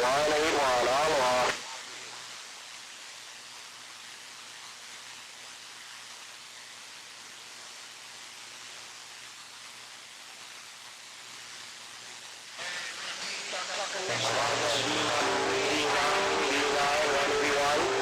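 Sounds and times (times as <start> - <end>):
faint hum: 0.0 - 2.2, 12.6 - 18.0
radio static hiss: 0.0 - 2.6, 11.4 - 18.0.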